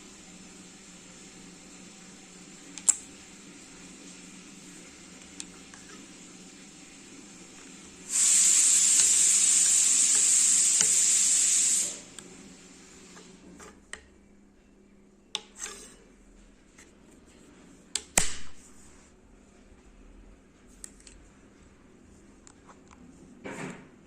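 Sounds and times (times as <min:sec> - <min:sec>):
loud steady hiss: 0:00.0 - 0:13.3.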